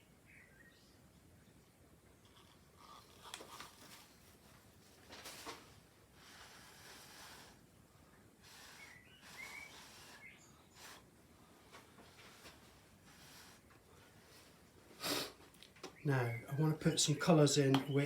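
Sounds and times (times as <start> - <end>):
faint puffs of breath: 6.0 - 15.4
faint chirps: 6.3 - 11.1.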